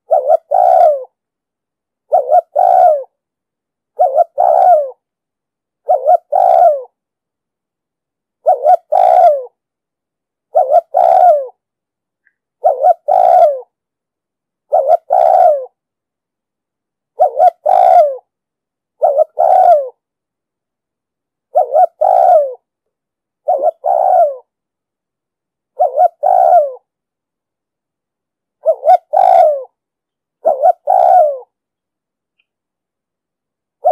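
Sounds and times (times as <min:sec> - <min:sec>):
dove cooing: 0:00.0 - 0:01.2, 0:02.1 - 0:03.2, 0:04.0 - 0:05.0, 0:05.8 - 0:07.0, 0:08.4 - 0:09.6, 0:10.5 - 0:11.6, 0:12.6 - 0:13.8, 0:14.7 - 0:15.8, 0:17.2 - 0:18.3, 0:19.0 - 0:20.0, 0:21.5 - 0:22.7, 0:23.4 - 0:24.5, 0:25.7 - 0:26.9, 0:28.6 - 0:29.8, 0:30.4 - 0:31.6.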